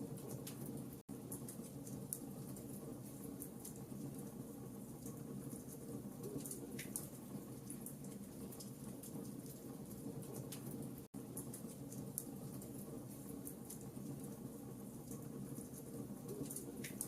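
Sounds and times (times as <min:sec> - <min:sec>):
wood fire crackling: 0:00.0 - 0:17.0
fire pops and snaps: 0:06.2 - 0:07.1.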